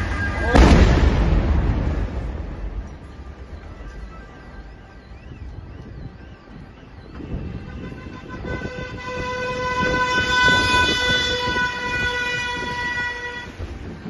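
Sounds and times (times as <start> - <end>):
horn blast: 7.1 - 13.9.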